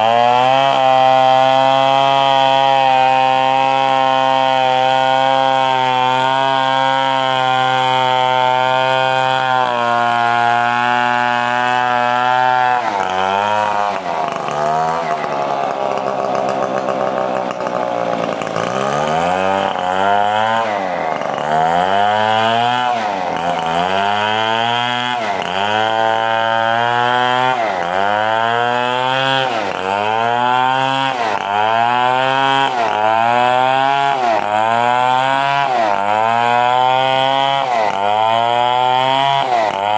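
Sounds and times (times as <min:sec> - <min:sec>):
chainsaw running and revving: 0:00.0 - 0:39.9.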